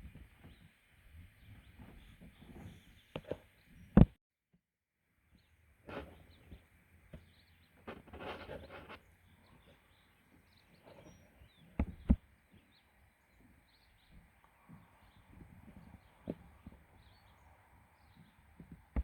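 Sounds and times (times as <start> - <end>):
small birds chirping: 0.0 - 4.1, 5.2 - 19.0
noisy rustle: 7.8 - 9.9.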